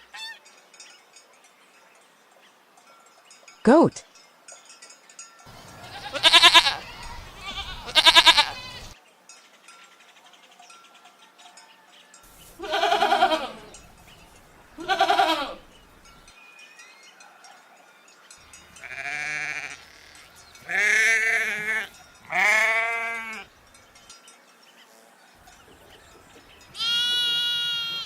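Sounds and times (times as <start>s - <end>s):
goat bleating: 5.8s - 9.0s, 12.6s - 13.8s, 14.8s - 15.7s, 18.8s - 23.5s, 26.8s - 28.0s.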